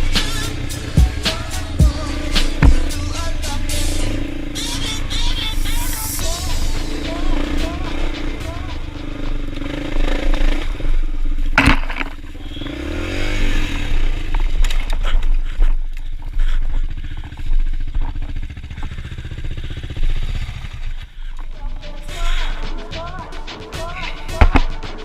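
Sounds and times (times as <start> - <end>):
dirt bike engine revving: 0.0 - 25.0
sharp knock: 2.6 - 3.0, 24.4 - 24.8
scraping and clattering over ground: 11.4 - 12.6.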